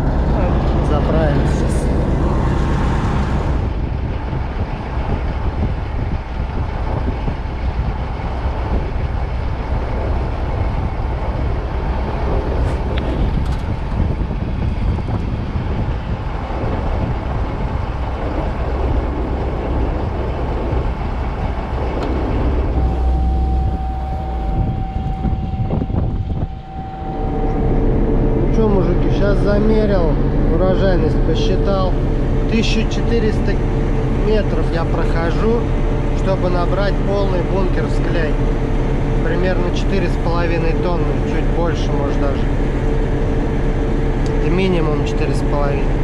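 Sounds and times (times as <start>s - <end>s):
combine harvester running: 0.0s - 46.0s
high-pitched tone: 22.7s - 32.4s.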